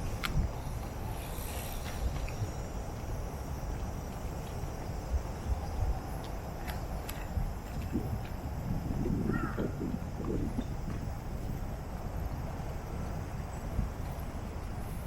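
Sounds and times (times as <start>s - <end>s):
traffic rumble: 0.0s - 15.0s
wind: 0.0s - 15.0s
faint insect buzz: 0.1s - 9.9s.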